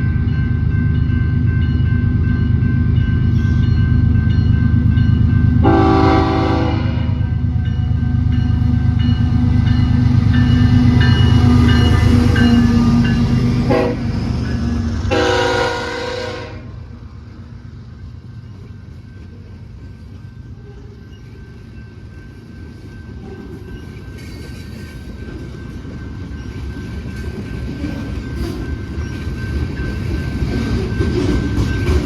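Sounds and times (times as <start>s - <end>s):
diesel locomotives rumbling past: 0.0s - 32.0s
train air horn: 5.6s - 7.2s, 13.7s - 14.1s, 15.1s - 16.8s.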